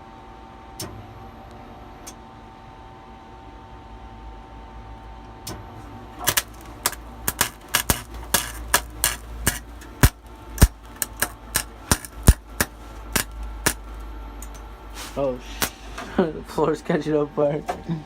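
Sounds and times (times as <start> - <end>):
welding arc popping and crackling: 6.2 - 14.7
welder low hum: 6.2 - 15.7.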